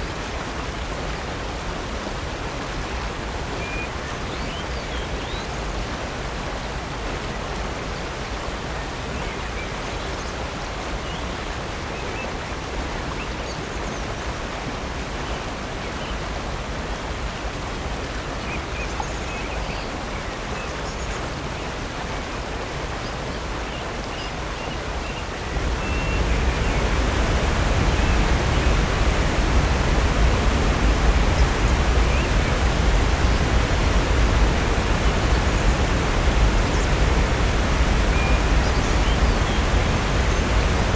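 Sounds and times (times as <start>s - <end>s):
rushing water: 0.0s - 40.9s
faint bird chirps: 23.7s - 27.1s.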